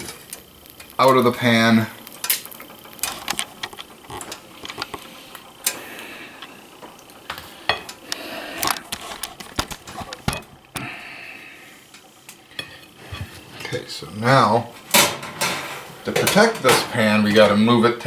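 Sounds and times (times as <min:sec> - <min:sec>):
light sizzling in hot pan: 0:00.0 - 0:18.0
utensils clinking on pan and plate: 0:07.4 - 0:08.0, 0:11.9 - 0:13.9, 0:14.9 - 0:17.6.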